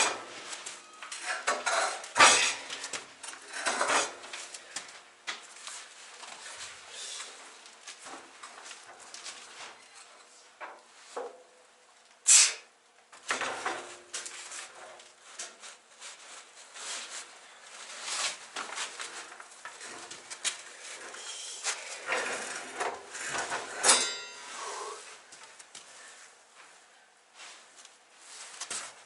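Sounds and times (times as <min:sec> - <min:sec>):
knocks clatter and scraping: 0:00.0 - 0:04.8, 0:13.2 - 0:24.5.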